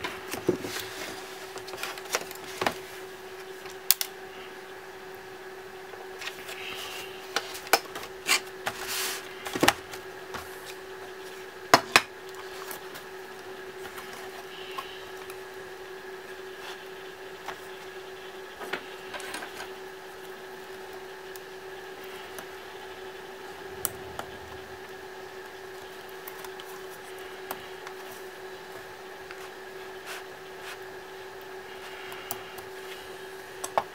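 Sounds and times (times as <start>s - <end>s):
low hum: 22.1s - 27.7s.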